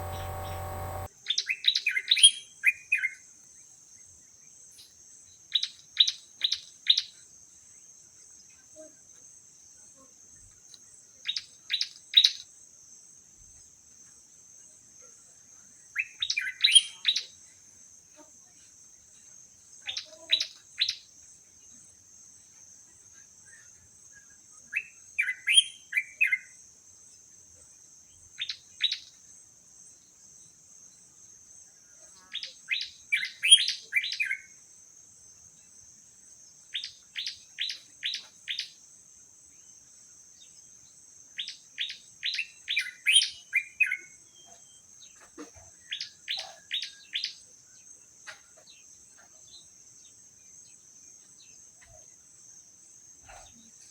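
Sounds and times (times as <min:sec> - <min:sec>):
bird chirping: 0:00.0 - 0:01.1
steady high buzz: 0:00.0 - 0:01.1.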